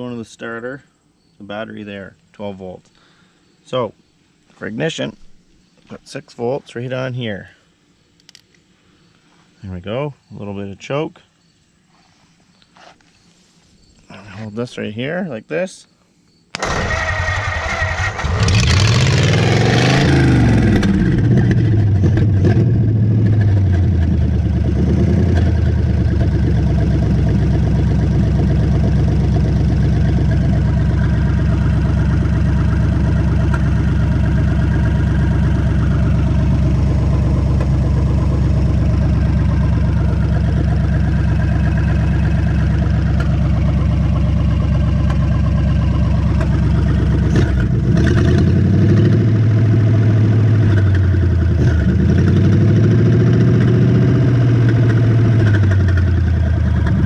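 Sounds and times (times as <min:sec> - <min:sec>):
starter cranking engine: 0:16.6 - 0:22.3, 0:44.7 - 0:48.5
engine revving and idling: 0:16.6 - 0:57.0.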